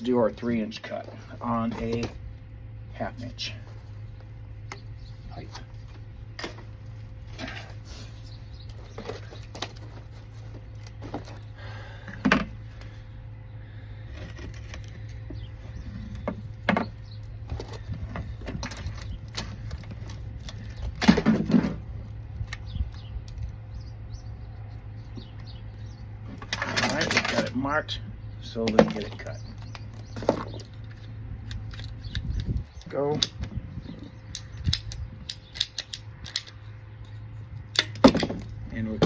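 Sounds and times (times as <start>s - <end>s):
steady low hum: 0.0s - 39.0s
tools and plastic pipe clicking: 28.6s - 38.6s.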